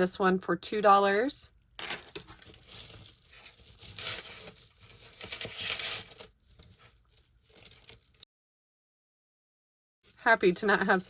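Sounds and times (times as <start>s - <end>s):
jewelry rustling and clinking: 0.7s - 8.2s.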